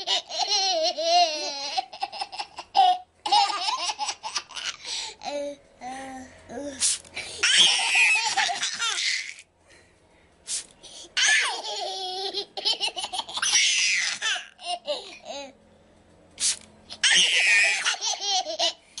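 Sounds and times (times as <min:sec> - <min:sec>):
toddlers laughing: 0:00.0 - 0:04.8, 0:07.4 - 0:09.5, 0:11.2 - 0:15.5, 0:17.0 - 0:18.8.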